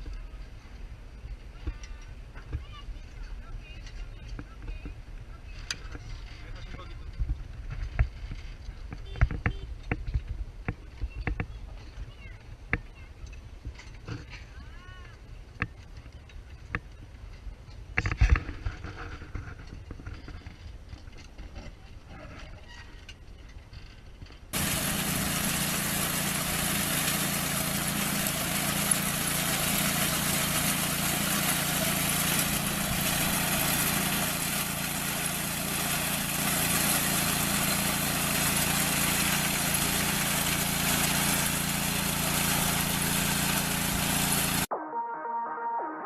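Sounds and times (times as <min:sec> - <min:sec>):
machine engine running: 0:24.6 - 0:44.7.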